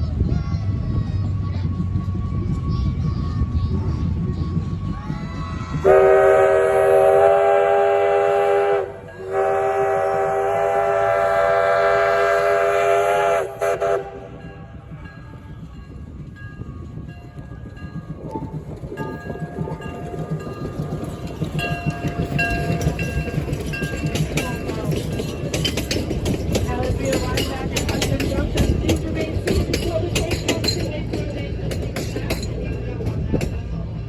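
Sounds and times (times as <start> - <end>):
low train rumble: 0.0 - 34.0
steam locomotive whistle: 5.8 - 14.4.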